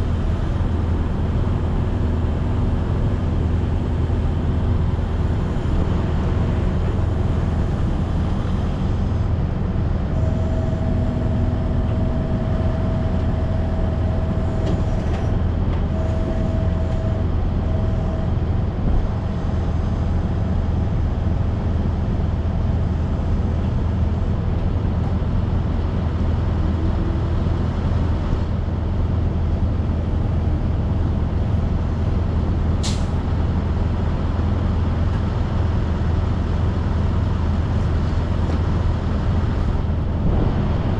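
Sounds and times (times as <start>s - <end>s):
faint whine: 0.0s - 9.2s, 10.0s - 20.0s
truck diesel engine and road noise: 0.0s - 40.9s.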